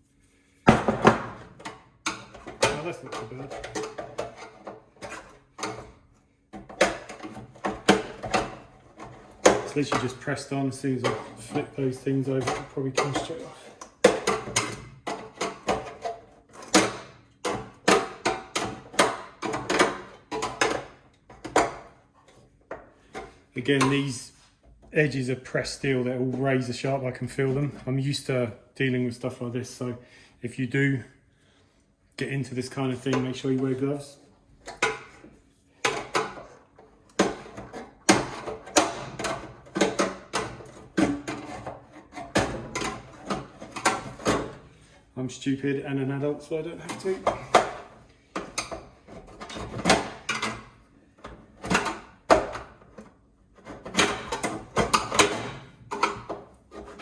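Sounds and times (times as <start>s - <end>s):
metal knocks and scrapes: 34.7s - 44.6s, 46.8s - 57.0s.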